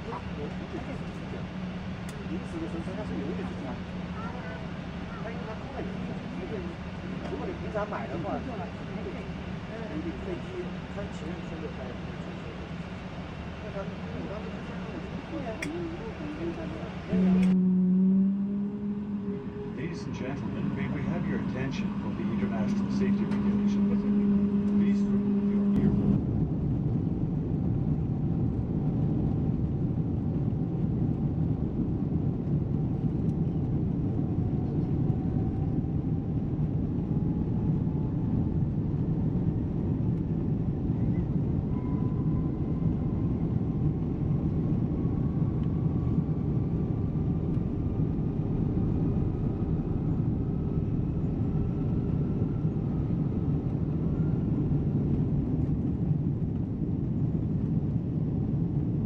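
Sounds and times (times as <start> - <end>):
airliner cabin rumble: 0.0 - 18.0, 18.6 - 59.0
faint rising whine: 0.0 - 26.2.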